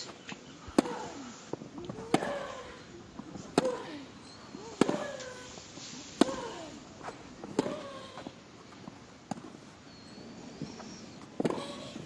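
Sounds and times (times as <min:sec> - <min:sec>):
tennis racquets striking ball: 0:00.8 - 0:01.1, 0:01.9 - 0:02.5, 0:03.5 - 0:03.9, 0:04.7 - 0:05.2, 0:07.4 - 0:07.9, 0:11.4 - 0:11.8.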